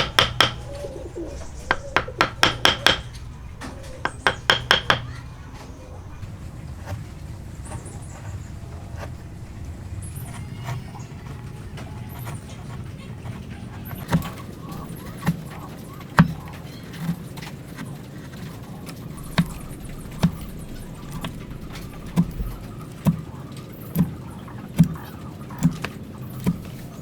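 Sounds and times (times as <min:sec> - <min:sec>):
mallet knocking on wood: 0:00.0 - 0:00.8, 0:01.7 - 0:03.2, 0:04.0 - 0:05.2, 0:19.2 - 0:27.0.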